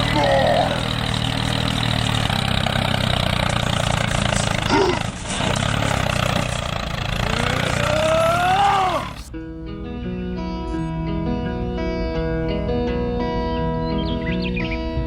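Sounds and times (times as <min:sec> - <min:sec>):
small engine running: 0:00.0 - 0:09.3
rising and falling whine: 0:06.4 - 0:09.3.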